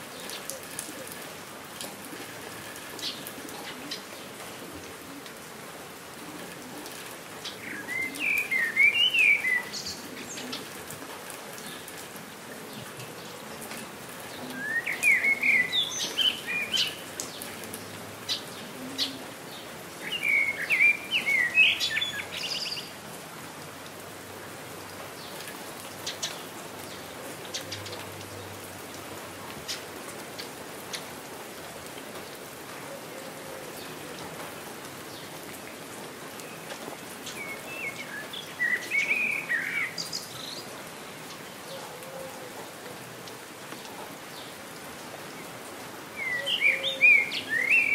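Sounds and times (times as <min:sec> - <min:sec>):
rain falling: 0:00.0 - 0:47.9
water drips: 0:06.6 - 0:18.8
songbird chirping: 0:07.4 - 0:10.7, 0:14.4 - 0:23.0, 0:36.4 - 0:42.0, 0:46.2 - 0:47.9.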